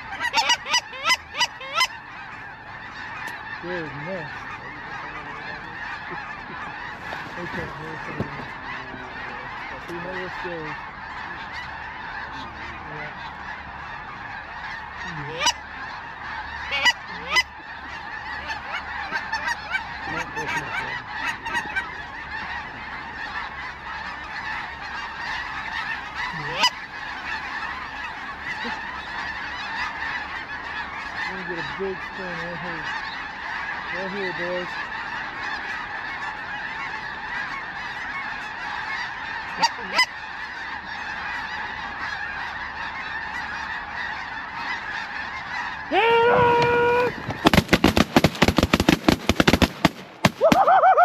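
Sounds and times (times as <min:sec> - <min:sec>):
geese honking: 0:00.0 - 0:51.0
sharp cracks: 0:46.6 - 0:50.8.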